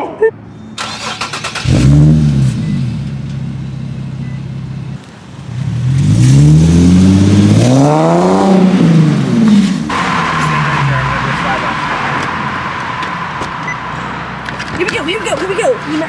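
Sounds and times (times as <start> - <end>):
car engine idling and revving: 0.4 - 16.0.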